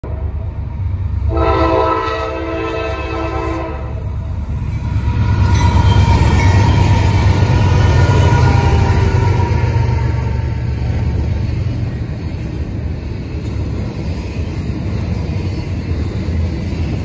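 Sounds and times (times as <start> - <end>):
train wheels on rail: 0.0 - 17.0
locomotive horn chord: 1.3 - 4.0.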